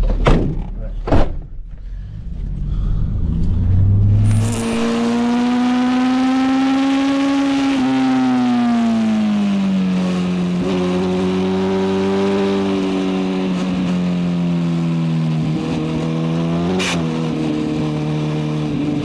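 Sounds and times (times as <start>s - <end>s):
vehicle engine running: 1.6s - 5.5s.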